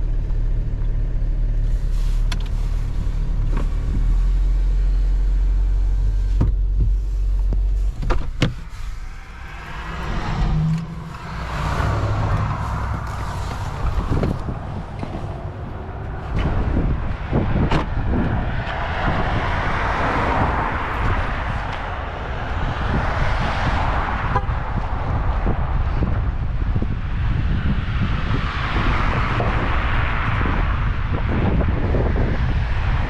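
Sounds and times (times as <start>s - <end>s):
truck road rumble: 0.0s - 33.0s
tyre and wind hiss: 1.6s - 22.0s.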